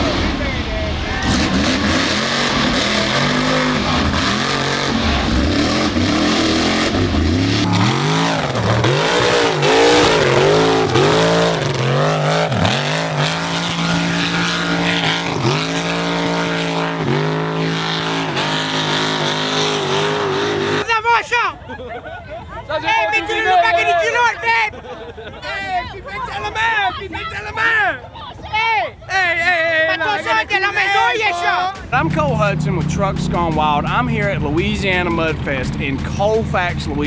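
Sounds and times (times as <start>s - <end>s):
truck engine revving hard: 0.0s - 21.0s, 29.9s - 37.0s.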